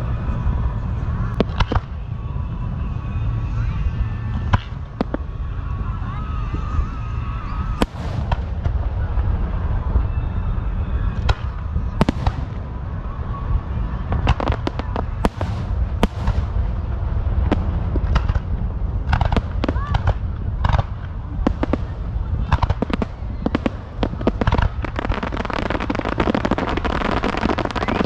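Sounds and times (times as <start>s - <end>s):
fireworks crackling: 0.0s - 28.0s
low rumble: 0.0s - 28.0s
fireworks bangs: 6.6s - 28.0s.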